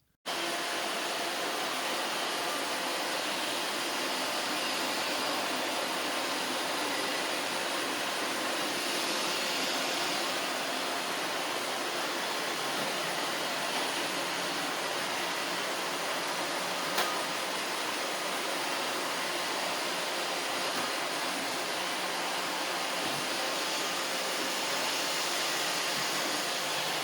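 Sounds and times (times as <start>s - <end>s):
robot vacuum cleaner whirring: 0.3s - 18.4s, 20.6s - 27.0s.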